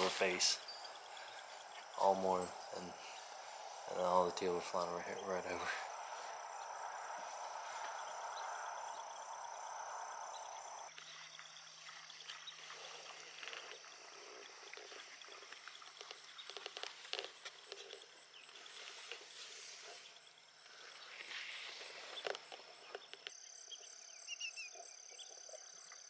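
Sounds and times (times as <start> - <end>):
frogs and insects calling: 0.0 - 26.0.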